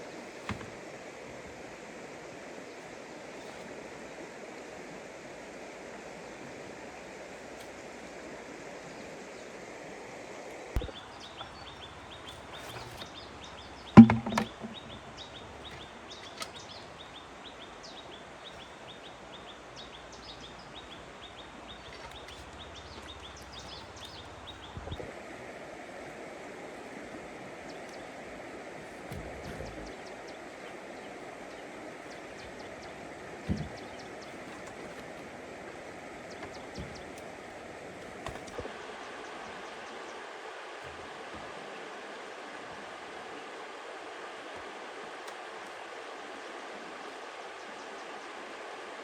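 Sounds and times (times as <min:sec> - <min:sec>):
loud knock: 0:14.0 - 0:14.7.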